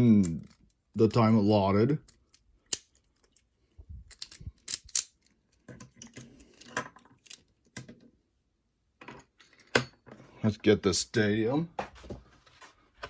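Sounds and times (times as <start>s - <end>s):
plastic toy parts clicking and rattling: 0.1s - 0.8s, 2.0s - 7.9s.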